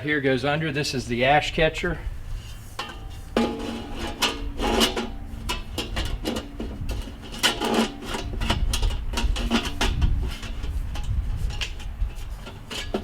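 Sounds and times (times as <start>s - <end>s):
metal rubbing: 2.4s - 13.0s
sheet metal clanking: 2.8s - 13.0s.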